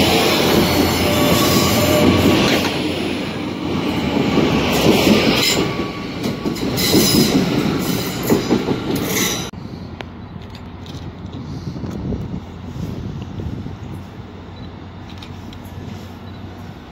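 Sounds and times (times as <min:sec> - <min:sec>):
train rushing past: 0:00.0 - 0:10.0.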